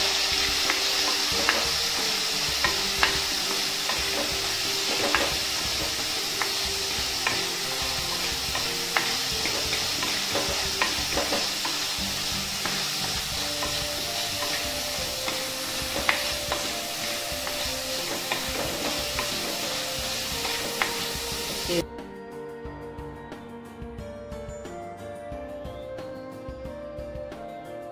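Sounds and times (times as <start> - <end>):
vegetables sizzling in hot oil: 0.0 - 21.8
spatula knocking and scraping pot: 0.4 - 21.7.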